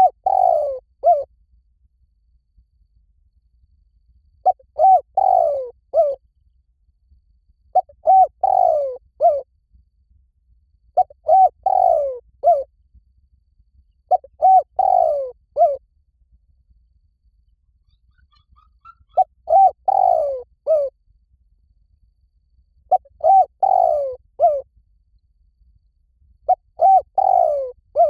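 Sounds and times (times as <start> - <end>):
dove cooing: 0.0 - 1.3, 4.4 - 6.2, 7.7 - 9.4, 11.0 - 12.7, 14.1 - 15.8, 18.1 - 20.9, 22.9 - 24.6, 26.5 - 28.0.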